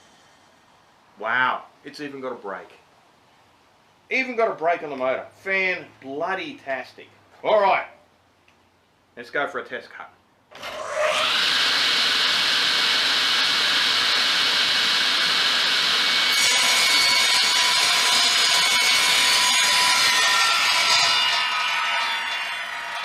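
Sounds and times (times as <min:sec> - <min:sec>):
saw blade cutting wood: 0:10.5 - 0:23.0
table saw running: 0:10.5 - 0:23.0.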